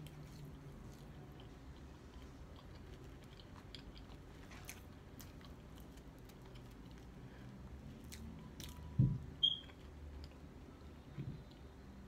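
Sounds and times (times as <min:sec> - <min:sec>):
person chewing food: 0:00.0 - 0:09.0.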